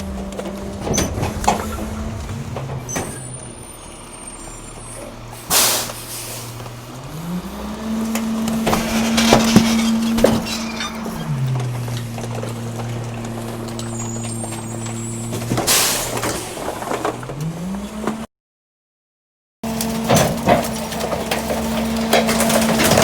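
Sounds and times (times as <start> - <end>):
trash cracking and knocking: 0.0 - 3.5, 7.7 - 17.5, 20.0 - 23.0
garbage truck engine running: 0.0 - 18.2, 19.7 - 23.0.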